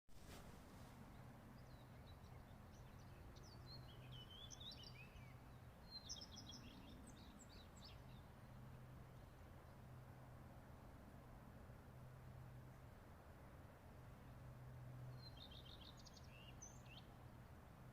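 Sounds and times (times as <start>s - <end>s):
songbird chirping and trilling: 1.1s - 9.8s, 15.0s - 17.4s.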